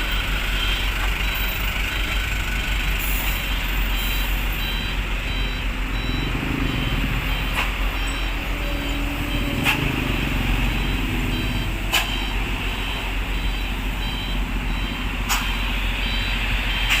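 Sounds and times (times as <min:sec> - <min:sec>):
truck diesel engines idling: 0:00.0 - 0:17.0
faint high beeps: 0:03.5 - 0:16.9.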